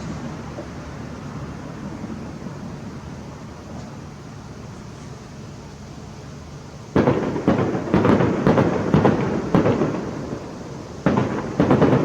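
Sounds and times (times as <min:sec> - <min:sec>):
fireworks banging: 0:07.0 - 0:12.0.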